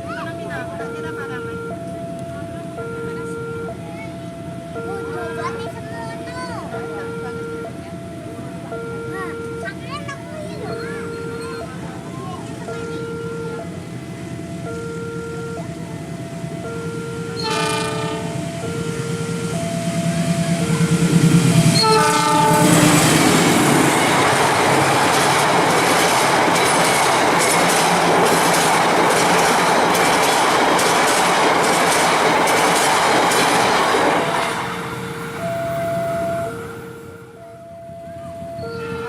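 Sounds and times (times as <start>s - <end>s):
two-pitch alarm tone: 0.6s - 11.8s, 12.6s - 30.4s, 33.2s - 39.0s
train horn blasts: 17.4s - 18.8s, 21.7s - 23.2s
train wheels clattering: 21.3s - 35.5s.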